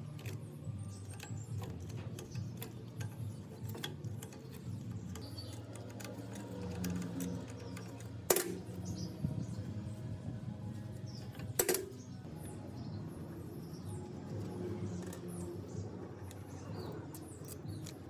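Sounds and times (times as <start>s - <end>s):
mechanical ticking and clicking: 0.0s - 8.9s
sharp click: 11.2s - 12.1s.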